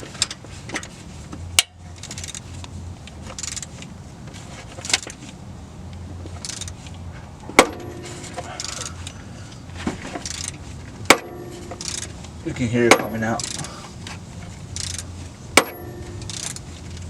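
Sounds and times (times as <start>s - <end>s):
ratchet clicking: 3.3s - 3.8s, 6.4s - 6.8s, 10.2s - 10.6s, 11.8s - 12.2s, 13.0s - 13.7s, 14.7s - 17.0s.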